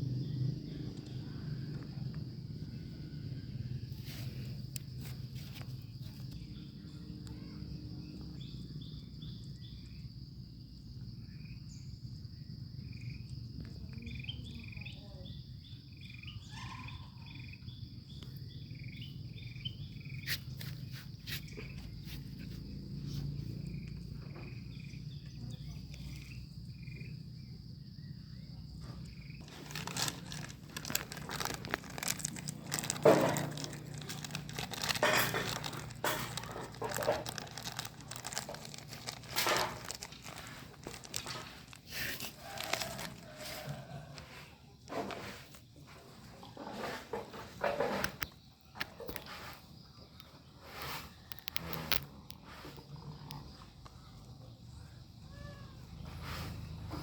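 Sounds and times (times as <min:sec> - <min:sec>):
rustling and crinkling: 0:03.9 - 0:06.5, 0:20.1 - 0:26.4, 0:28.8 - 0:53.4.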